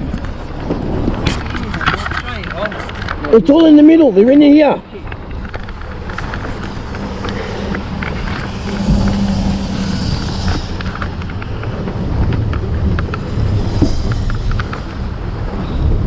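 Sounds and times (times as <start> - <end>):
vehicle engine running: 5.0 - 15.5.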